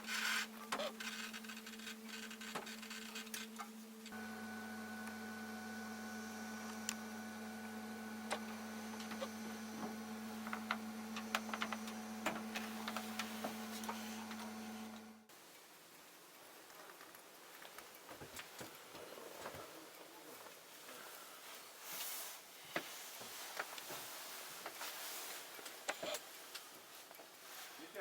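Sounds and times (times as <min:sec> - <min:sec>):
steady electrical hum: 0:00.0 - 0:18.1.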